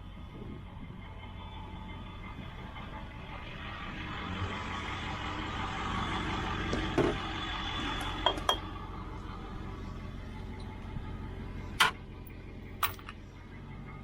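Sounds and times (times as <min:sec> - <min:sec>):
vehicle running noise: 0:00.0 - 0:14.0
loose items clinking: 0:12.8 - 0:13.2.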